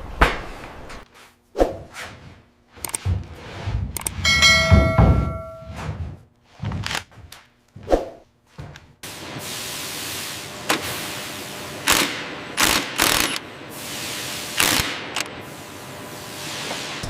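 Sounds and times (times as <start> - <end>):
sharp metal clanks: 4.2 - 5.8
knocks: 4.3 - 5.9.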